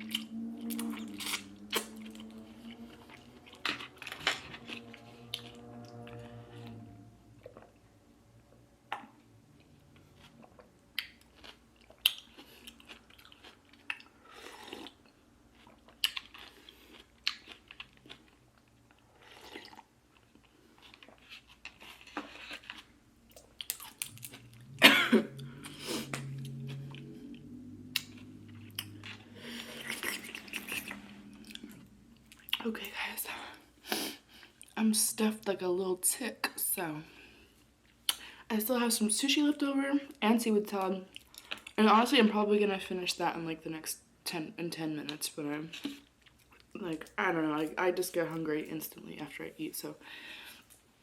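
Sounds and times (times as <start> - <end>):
person chewing food: 0.0 - 6.8, 8.9 - 32.6, 41.1 - 41.8, 45.7 - 46.8.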